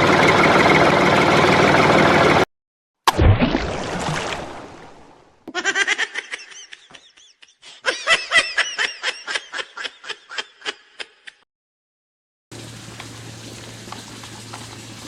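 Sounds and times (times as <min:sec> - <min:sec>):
high-pitched laughter: 0:05.5 - 0:11.4.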